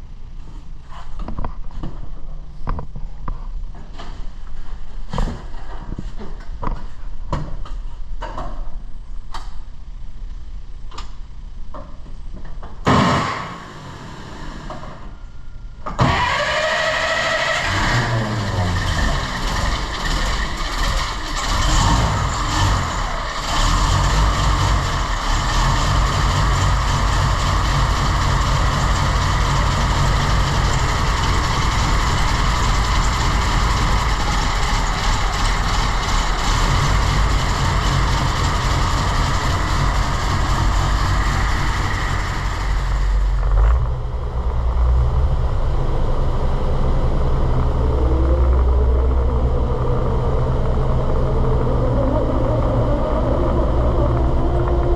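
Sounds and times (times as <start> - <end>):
truck engine starting and revving: 16.0 - 54.9.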